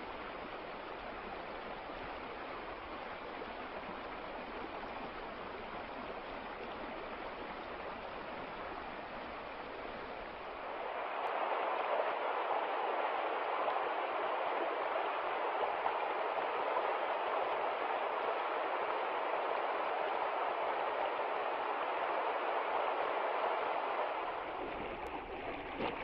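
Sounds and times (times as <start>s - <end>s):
rushing river water: 0.0s - 26.0s.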